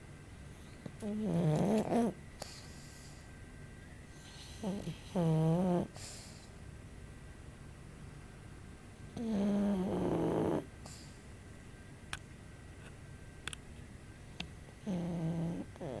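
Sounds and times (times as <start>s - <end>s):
dog snoring softly: 0.5s - 3.3s, 4.1s - 6.6s, 9.1s - 11.2s, 14.8s - 16.0s.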